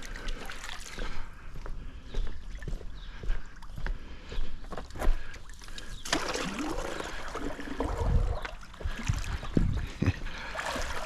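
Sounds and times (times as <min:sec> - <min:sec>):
pool water splashing: 0:06.0 - 0:09.2, 0:10.4 - 0:11.0.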